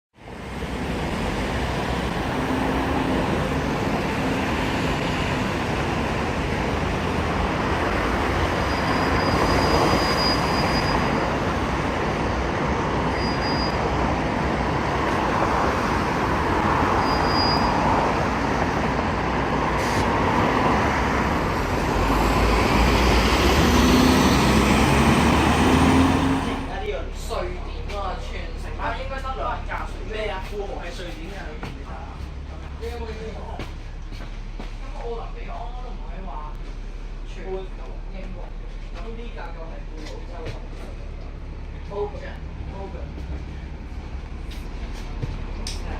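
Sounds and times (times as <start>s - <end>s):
bus engine rumble: 0.2s - 45.9s
road and body noise: 0.2s - 45.9s
short high squeaks: 8.6s - 11.3s, 13.1s - 13.8s, 16.9s - 17.9s.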